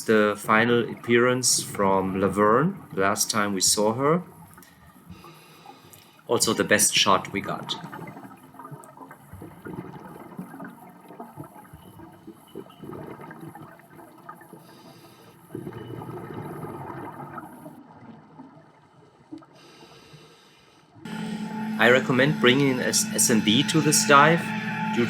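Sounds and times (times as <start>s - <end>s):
gurgling water underwater: 7.7s - 19.6s.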